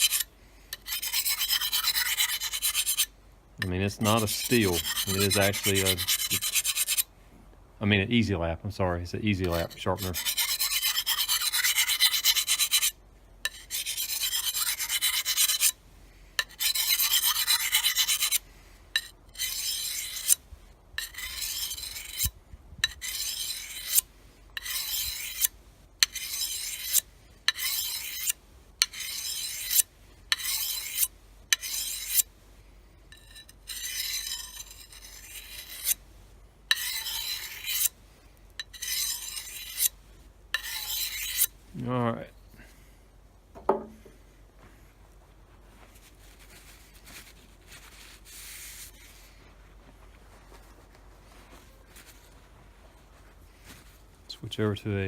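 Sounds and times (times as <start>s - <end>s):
sharpener rasping on steel blade: 0.0s - 3.1s, 4.0s - 7.1s, 9.5s - 15.8s, 16.4s - 18.4s, 19.0s - 20.4s, 21.0s - 32.3s, 33.1s - 36.0s, 36.7s - 37.9s, 38.6s - 39.9s, 40.6s - 41.5s.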